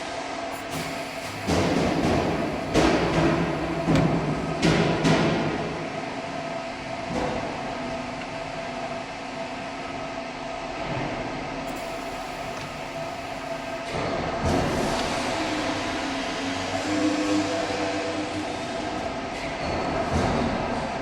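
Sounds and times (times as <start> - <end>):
industrial machinery hiss: 0.5 - 6.2, 11.6 - 19.3.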